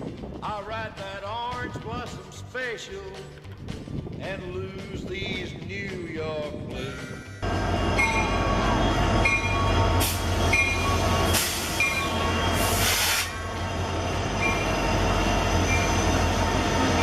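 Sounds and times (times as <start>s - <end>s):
train rumbling: 0.0s - 17.0s
bursts of hiss: 12.6s - 13.3s.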